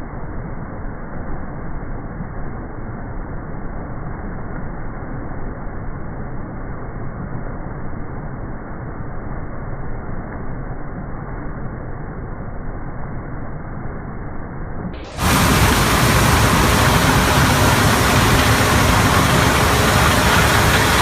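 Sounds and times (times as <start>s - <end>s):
harvest machinery running: 15.1s - 21.0s.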